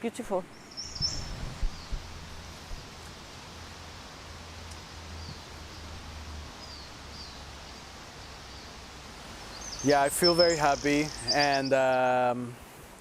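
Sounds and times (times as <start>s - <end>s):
background hiss: 0.0s - 13.0s
faint bird chirps: 0.5s - 2.1s, 9.4s - 12.1s.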